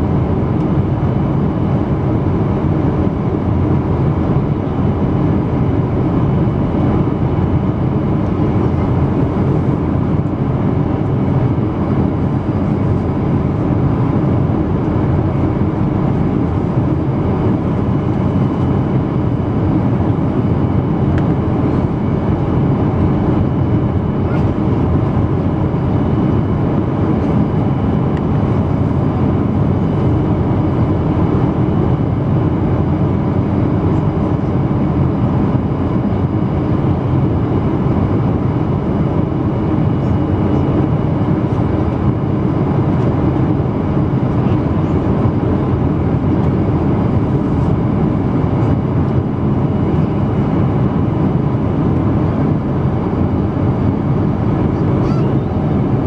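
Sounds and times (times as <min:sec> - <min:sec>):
airliner cabin engine rush: 0:00.0 - 0:56.0.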